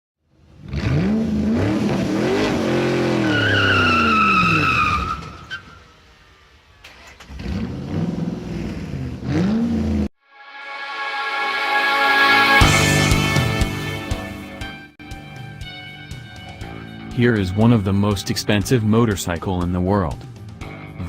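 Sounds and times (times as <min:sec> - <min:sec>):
motorcycle engine revving: 0:00.5 - 0:03.3, 0:07.1 - 0:10.1
high whine: 0:10.2 - 0:14.7.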